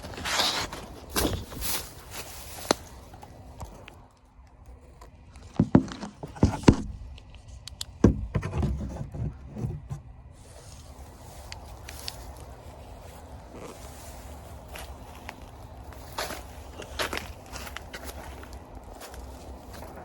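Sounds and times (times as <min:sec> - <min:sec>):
heavy footsteps and thuds: 0:05.6 - 0:07.1, 0:08.0 - 0:10.1.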